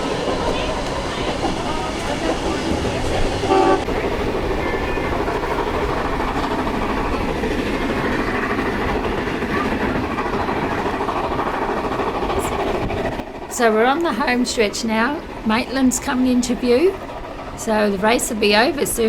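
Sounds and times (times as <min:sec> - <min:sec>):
train wheels clattering on track: 0:00.0 - 0:19.0
train whistle: 0:03.4 - 0:04.0.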